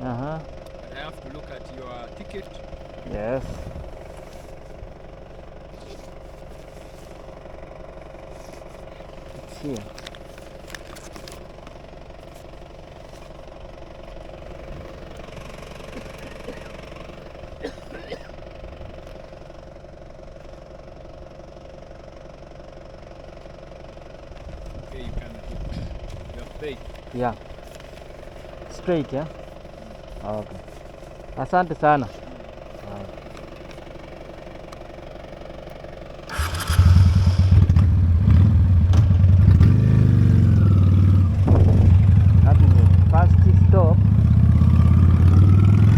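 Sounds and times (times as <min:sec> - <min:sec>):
motorcycle engine idling: 0:00.0 - 0:45.9
motorcycle engine accelerating: 0:14.0 - 0:17.6, 0:35.9 - 0:45.9.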